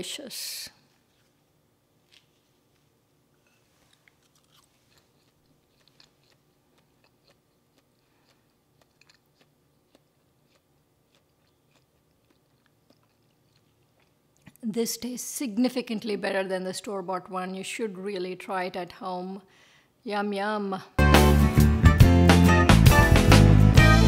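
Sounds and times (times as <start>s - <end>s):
faint chewing of bread: 0.9s - 14.6s.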